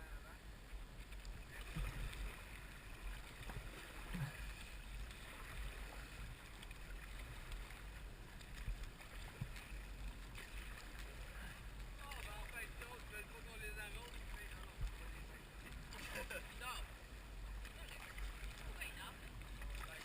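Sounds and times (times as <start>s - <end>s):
light water noise: 0.0s - 20.0s.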